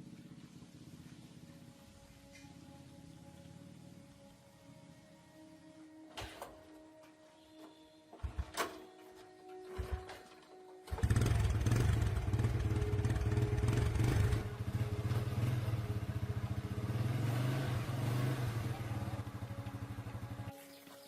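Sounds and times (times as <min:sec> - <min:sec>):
motorcycle engine running: 0:00.0 - 0:04.0, 0:10.9 - 0:20.6.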